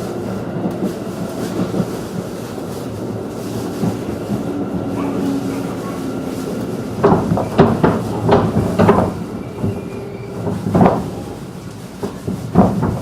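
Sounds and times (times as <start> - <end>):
train running rumble: 0.0 - 13.0
train wheels clunking over rail joints: 0.0 - 13.0.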